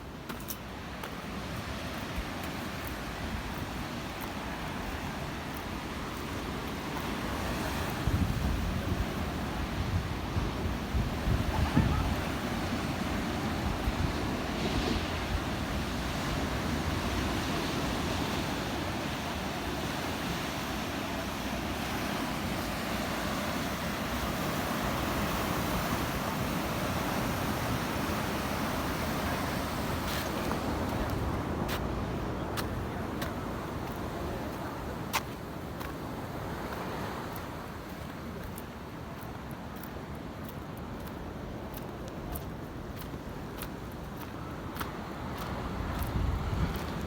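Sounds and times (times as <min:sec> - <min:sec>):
ocean surf: 0:00.0 - 0:47.0
wind on microphone: 0:07.2 - 0:20.6, 0:44.7 - 0:47.0.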